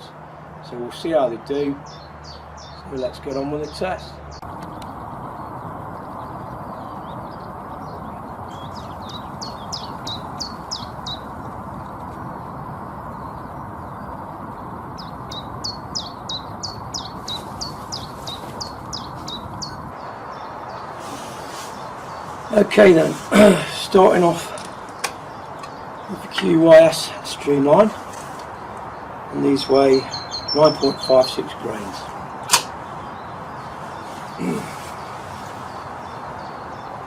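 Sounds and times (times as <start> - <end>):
small bird singing: 0.6 - 32.2, 32.8 - 37.0
background hum: 4.4 - 27.1.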